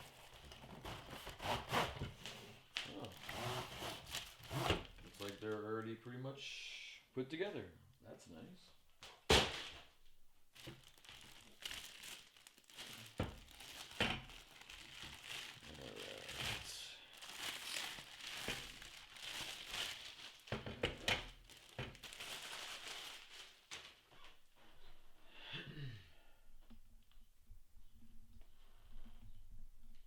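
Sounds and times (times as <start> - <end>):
packaging crinkling and rustling: 0.0 - 5.7, 10.5 - 24.2
packaging tearing: 2.7 - 5.5, 10.6 - 23.7.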